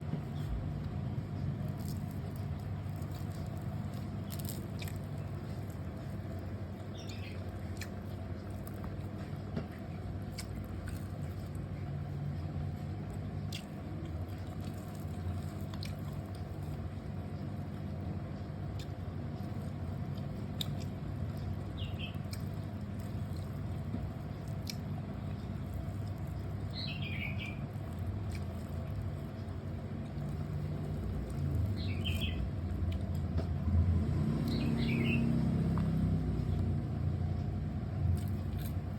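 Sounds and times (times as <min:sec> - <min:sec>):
person chewing food: 0:00.0 - 0:38.9
steady low hum: 0:00.0 - 0:38.9.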